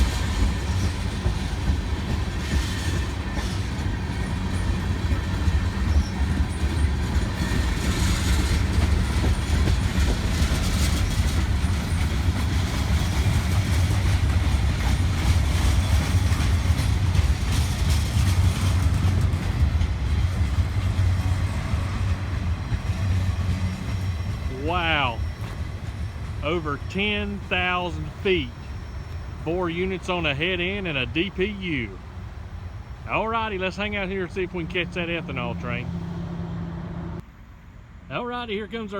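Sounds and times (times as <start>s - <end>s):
wheels clicking over rail joints: 0.0s - 24.4s
freight train rumble: 0.0s - 38.9s.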